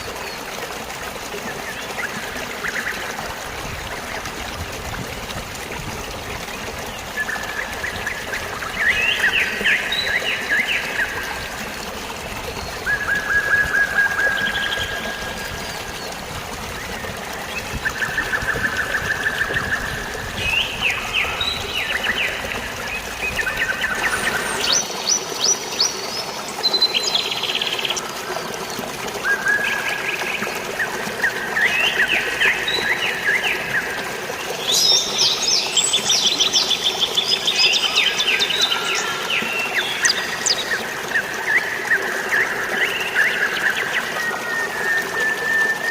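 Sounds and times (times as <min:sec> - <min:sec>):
flowing water: 0:00.0 - 0:45.9
birds singing trills: 0:12.5 - 0:28.1, 0:29.3 - 0:45.9.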